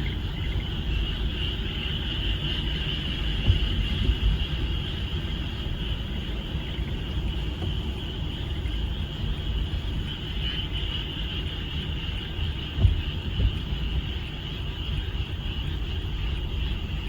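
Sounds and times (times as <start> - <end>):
frogs trilling: 0.0 - 17.0
heavy low rumble: 11.1 - 17.0.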